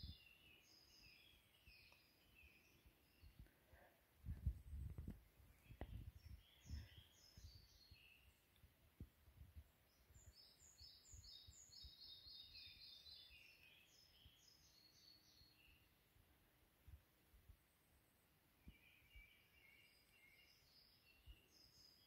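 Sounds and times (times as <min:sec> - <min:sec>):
songbirds singing: 0:00.0 - 0:16.5, 0:17.5 - 0:22.0
faint low thumps: 0:03.3 - 0:07.6.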